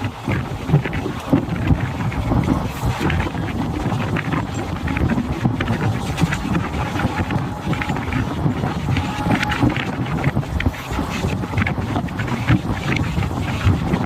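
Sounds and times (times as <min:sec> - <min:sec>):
train rattling and clattering: 0:00.0 - 0:14.0
train rumbling at speed: 0:00.0 - 0:14.0
wind buffeting microphone: 0:00.0 - 0:14.0.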